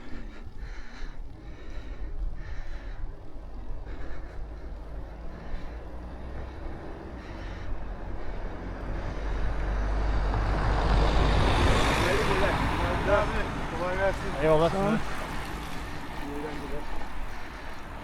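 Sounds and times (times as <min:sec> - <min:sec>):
wind rumble on microphone: 0:07.8 - 0:14.4.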